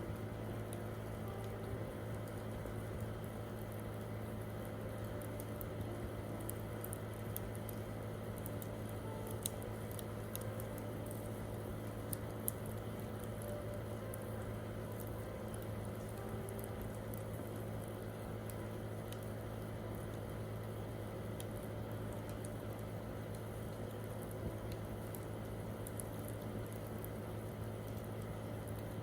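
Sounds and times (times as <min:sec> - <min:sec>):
campfire crackling and popping: 0:00.1 - 0:29.0.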